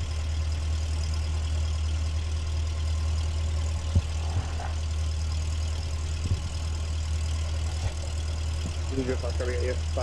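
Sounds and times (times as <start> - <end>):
aircraft piston engine idling: 0.0 - 10.0.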